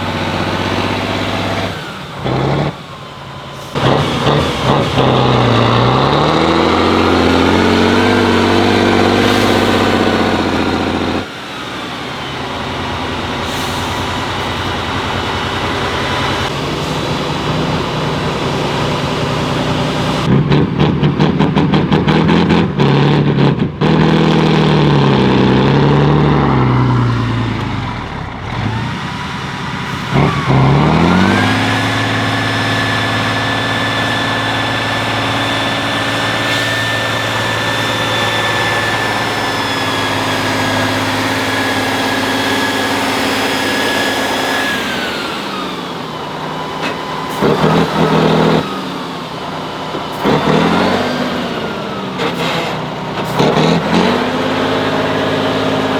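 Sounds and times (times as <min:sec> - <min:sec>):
truck engine revving under load: 0:00.0 - 0:55.9.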